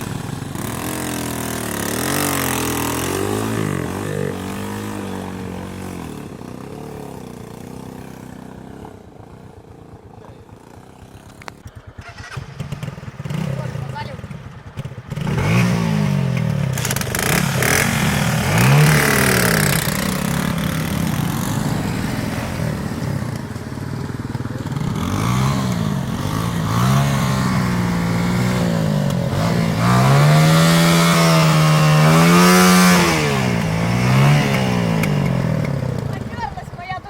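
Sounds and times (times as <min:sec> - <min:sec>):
small engine revving: 0:00.0 - 0:37.0.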